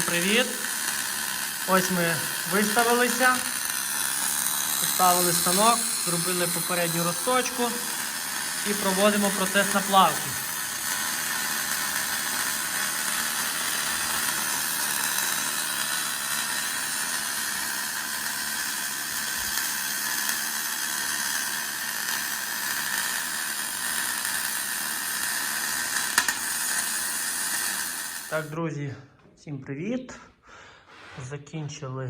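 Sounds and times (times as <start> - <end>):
welding arc hissing: 0.0 - 28.6.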